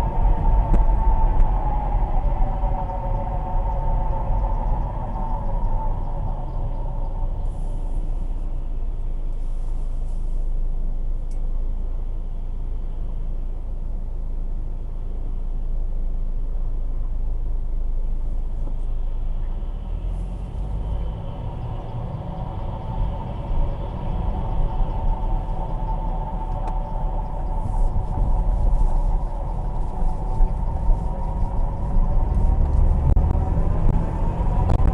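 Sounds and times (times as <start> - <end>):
gearbox whine: 0.0 - 9.5, 18.9 - 34.9
road and drivetrain rumble: 0.0 - 34.9.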